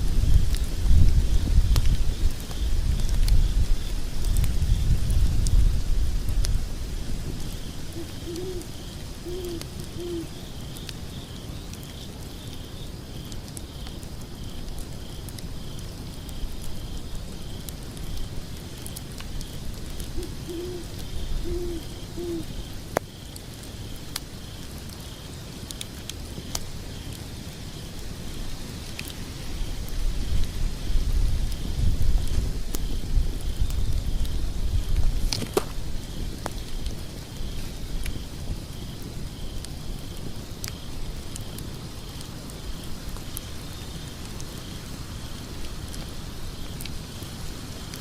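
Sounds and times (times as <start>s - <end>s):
burning logs crackling: 0.0s - 48.0s
insects chirping: 0.1s - 48.0s
owl hooting: 7.9s - 10.3s, 20.2s - 22.6s.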